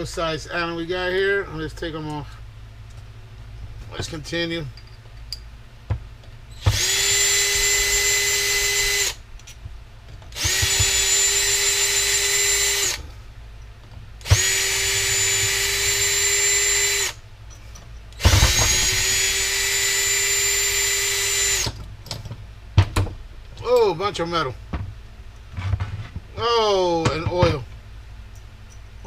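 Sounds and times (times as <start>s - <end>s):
power drill whine: 6.5s - 9.2s, 10.3s - 13.0s, 14.2s - 17.2s, 18.2s - 21.8s.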